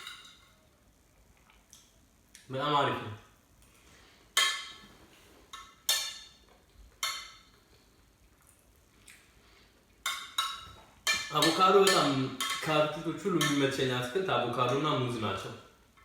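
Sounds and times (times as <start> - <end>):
cutlery clinking on plate: 10.0 - 12.8.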